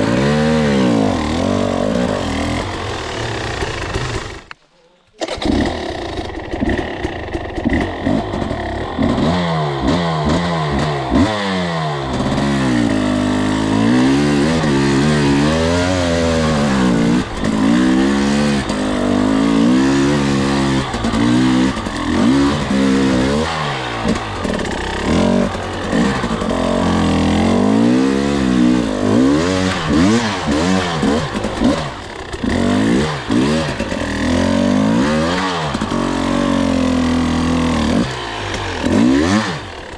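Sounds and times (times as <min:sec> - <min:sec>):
dirt bike engine revving: 0:00.0 - 0:04.5, 0:05.2 - 0:39.9.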